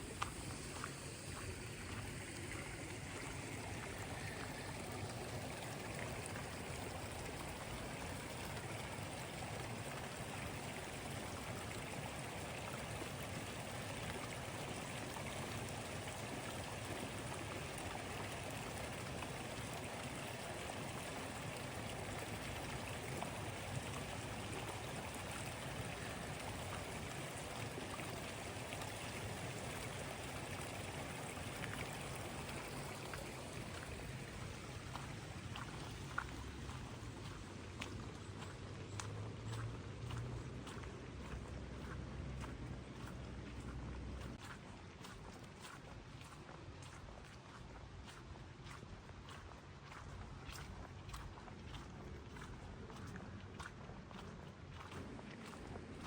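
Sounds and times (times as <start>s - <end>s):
running water or rain: 0.0s - 56.0s.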